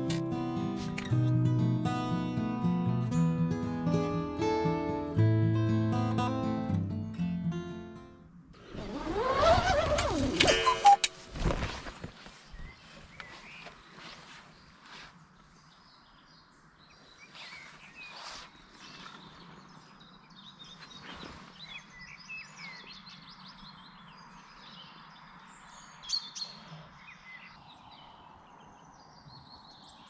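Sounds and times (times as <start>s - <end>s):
small birds chirping: 12.5s - 30.0s.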